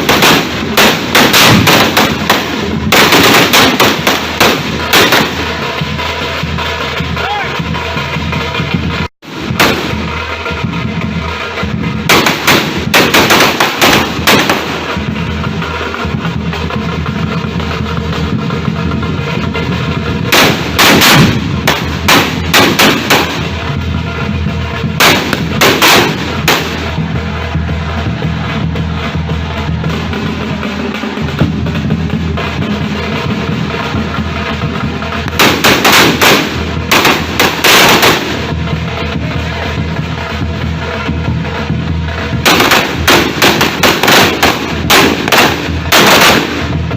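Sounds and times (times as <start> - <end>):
firecrackers banging: 0.0 - 46.9
music with steady bass line: 14.7 - 37.5, 38.1 - 46.9.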